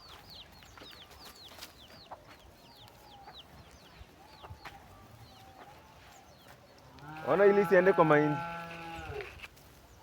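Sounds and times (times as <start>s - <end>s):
faint bird chirping: 0.0s - 7.1s.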